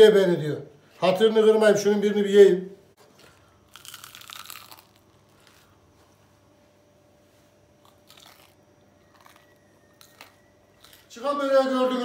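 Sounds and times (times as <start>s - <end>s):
crunchy pastry being chewed: 3.0s - 6.2s, 7.7s - 11.2s.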